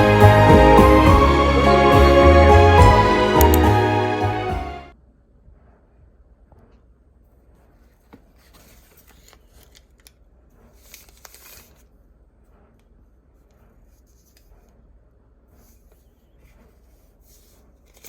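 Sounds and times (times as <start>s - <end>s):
faint rustling and handling: 7.3s - 18.0s.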